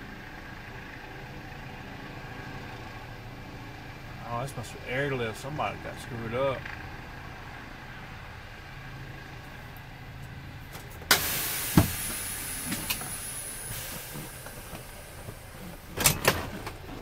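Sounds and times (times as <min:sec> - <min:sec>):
car engine idling: 0:00.0 - 0:17.0
loud hiss: 0:11.1 - 0:15.4.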